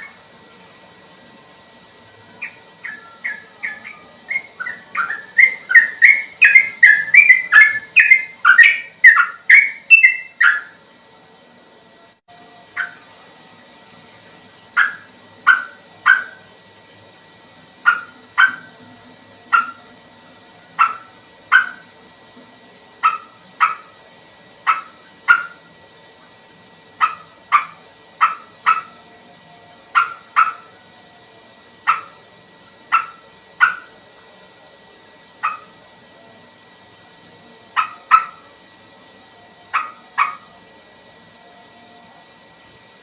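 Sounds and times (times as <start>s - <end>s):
faint steady hum: 0.0s - 43.0s
animal giving sharp calls: 23.0s - 23.9s, 24.6s - 25.6s, 32.9s - 33.9s, 37.8s - 38.4s, 39.7s - 40.5s.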